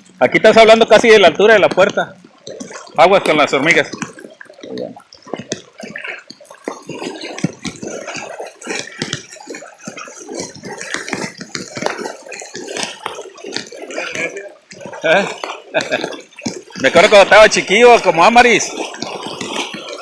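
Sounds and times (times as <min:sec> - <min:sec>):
water splashing from wading: 0:00.0 - 0:20.0.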